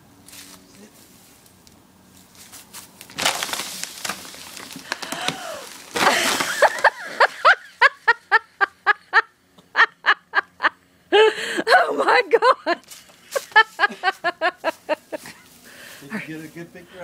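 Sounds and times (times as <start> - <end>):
branches and leaves rustling: 0.2 - 8.4, 12.8 - 17.0
wood cracking: 3.0 - 7.4
person laughing hard: 5.1 - 15.4.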